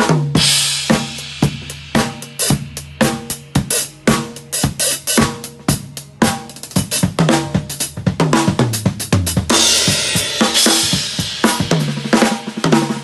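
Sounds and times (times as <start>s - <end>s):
kick and snare beat: 0.0s - 13.0s
snare and tom drum fill: 0.0s - 13.0s.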